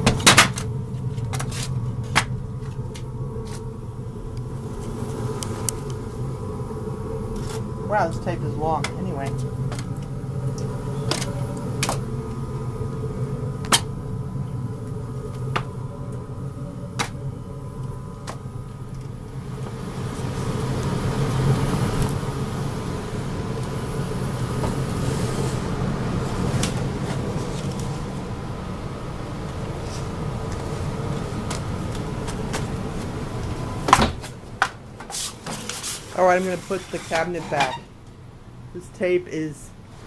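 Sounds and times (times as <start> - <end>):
furnace humming: 0.0 - 40.0
airy rush: 2.5 - 37.4.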